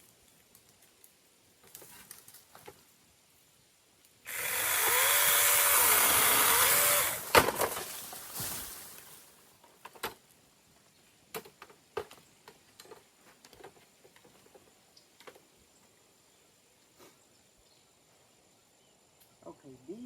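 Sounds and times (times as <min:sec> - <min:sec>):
clicks and snaps of twigs: 0:00.0 - 0:02.9.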